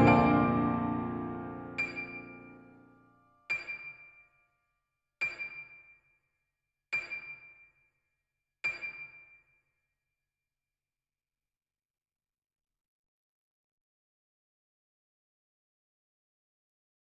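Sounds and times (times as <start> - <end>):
short high notes: 0.0 - 2.6
piano chord: 0.0 - 2.8.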